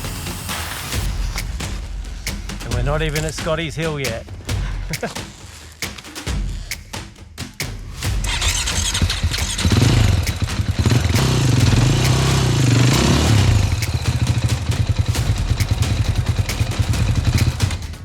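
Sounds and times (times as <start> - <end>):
dirt bike engine revving: 8.2 - 17.6.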